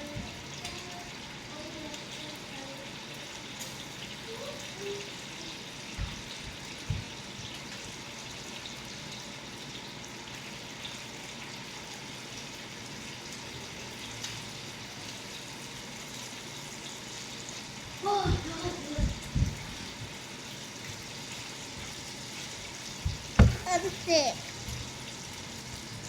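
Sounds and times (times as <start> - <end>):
soft low thumps: 23.1 - 23.8.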